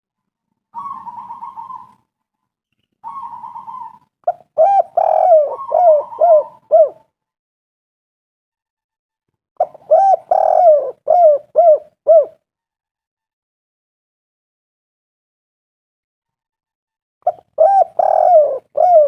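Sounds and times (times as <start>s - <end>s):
dove cooing: 0.8s - 2.0s, 3.0s - 7.1s, 9.6s - 12.4s, 17.3s - 19.0s.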